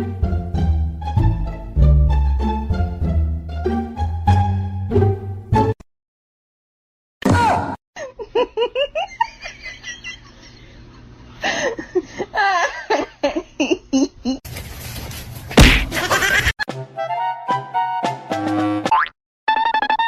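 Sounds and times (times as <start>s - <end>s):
person giggling: 8.0s - 10.9s, 11.5s - 14.4s, 15.8s - 16.6s.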